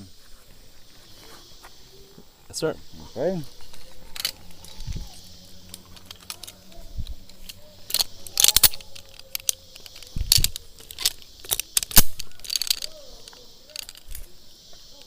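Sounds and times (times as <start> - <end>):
metallic clicks of harness gear: 3.4 - 14.3.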